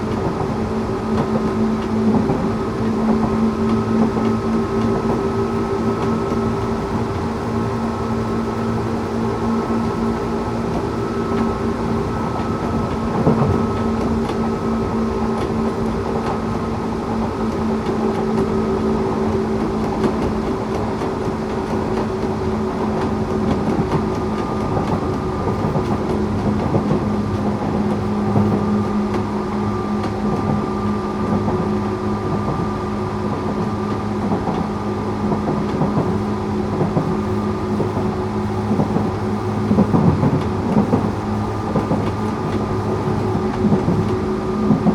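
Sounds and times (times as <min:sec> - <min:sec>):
train hum: 0:00.0 - 0:44.9
train running rumble: 0:00.0 - 0:44.9.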